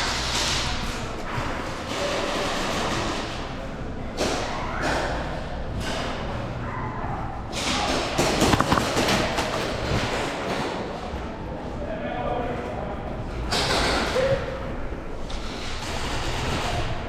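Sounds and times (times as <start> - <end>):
thuds and knocks: 8.4 - 10.0.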